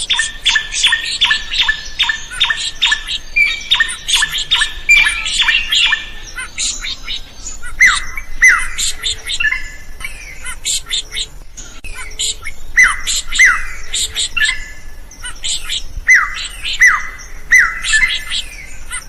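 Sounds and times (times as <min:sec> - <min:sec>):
bird singing sharp repeated notes: 0:00.0 - 0:19.0.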